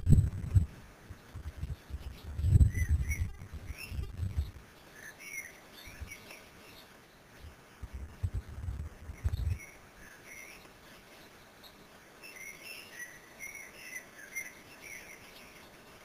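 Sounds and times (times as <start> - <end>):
low irregular rumbling: 0.0 - 4.7, 7.4 - 9.8.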